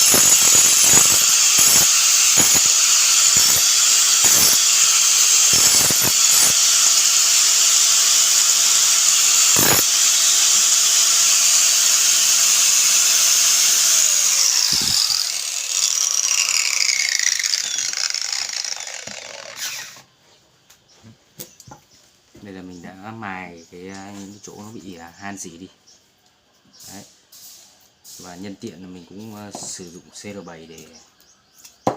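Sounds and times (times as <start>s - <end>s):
electric grinder grinding metal: 0.0s - 20.0s
grinder motor spinning down: 0.0s - 20.0s.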